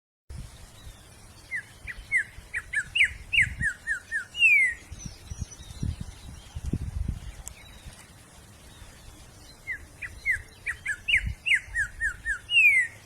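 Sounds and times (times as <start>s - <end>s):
songbird whistling: 0.8s - 6.6s, 8.7s - 13.0s.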